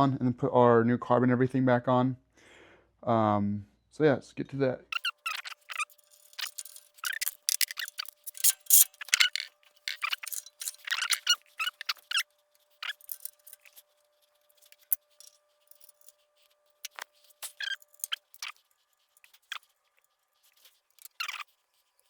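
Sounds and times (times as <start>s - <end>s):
metal tools clinking: 5.0s - 13.9s, 14.5s - 16.2s, 16.8s - 18.6s.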